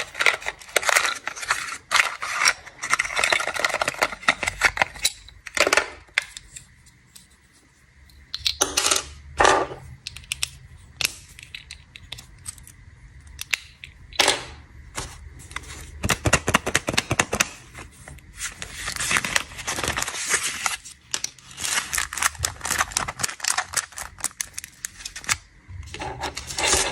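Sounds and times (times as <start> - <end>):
plastic wrappers crinkling: 0.0 - 6.6, 15.0 - 26.9.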